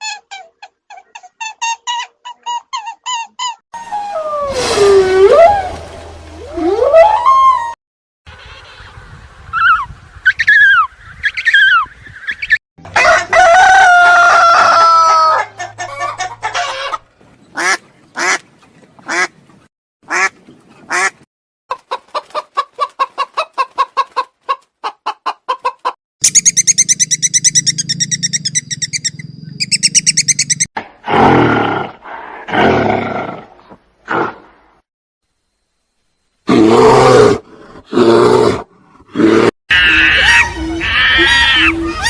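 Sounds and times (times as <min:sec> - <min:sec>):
rooster crowing: 0:12.9 - 0:16.0
chickens clucking: 0:15.2 - 0:26.0.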